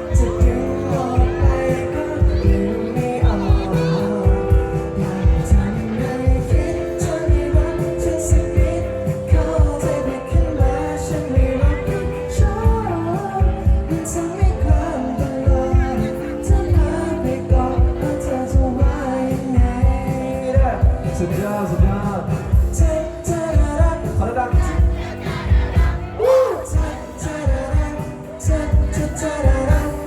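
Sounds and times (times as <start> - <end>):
keyboard chords: 0.0 - 30.0
live pop band: 0.0 - 30.0
steady drum beat: 0.0 - 30.0.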